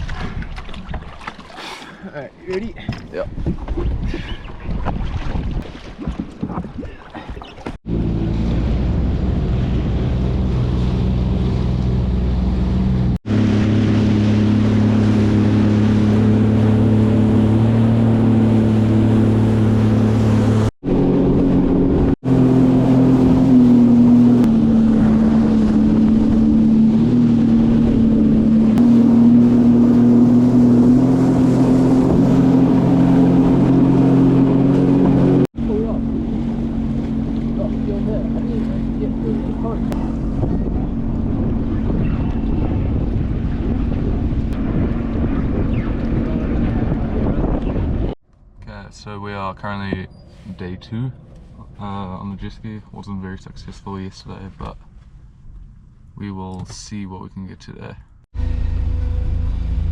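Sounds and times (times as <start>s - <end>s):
jet ski engine droning: 7.8s - 48.2s, 58.4s - 59.9s.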